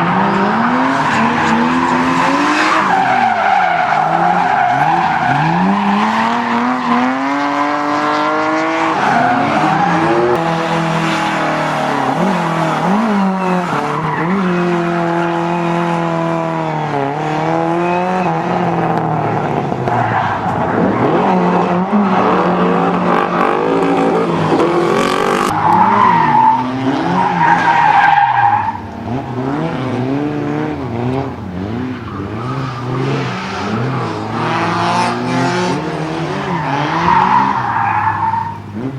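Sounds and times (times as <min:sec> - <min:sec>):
car engine revving: 0:00.0 - 0:38.9
tyres squealing: 0:36.4 - 0:38.9.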